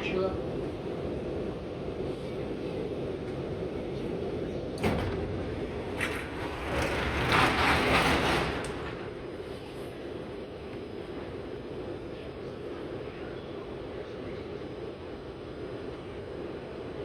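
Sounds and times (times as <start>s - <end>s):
standing train humming: 0.0s - 17.0s
train doors knocking shut: 4.7s - 9.4s.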